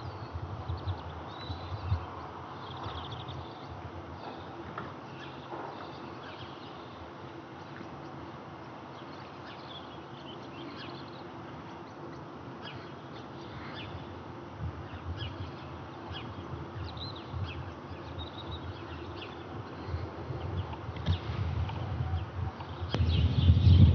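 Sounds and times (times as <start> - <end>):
small birds chirping: 0.0 - 23.9
low uneven rumble: 13.0 - 23.9.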